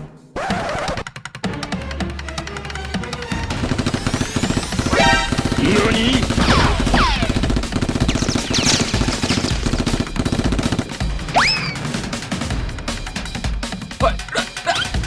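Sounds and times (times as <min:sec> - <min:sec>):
music: 0:00.0 - 0:15.0
rapid automatic gunfire: 0:03.5 - 0:12.5
whistling pitch glides: 0:11.3 - 0:11.8.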